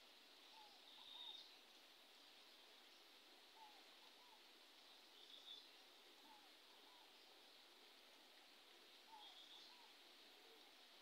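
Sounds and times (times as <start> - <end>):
faint outdoor hiss: 0.0 - 11.0.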